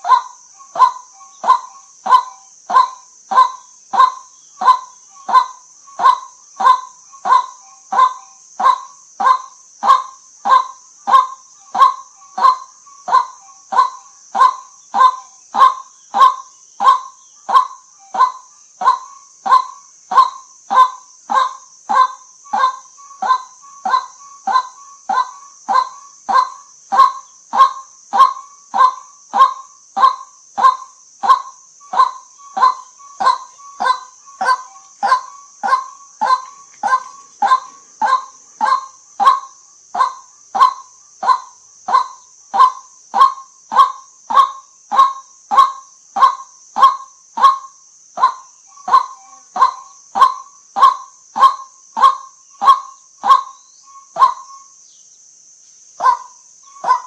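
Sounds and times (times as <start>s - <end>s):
waterhen calling kwak: 0.0s - 54.6s, 56.0s - 57.0s.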